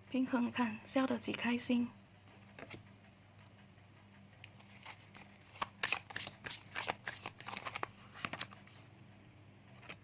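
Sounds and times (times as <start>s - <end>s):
cards flicking and rustling: 2.4s - 2.9s, 4.4s - 8.8s.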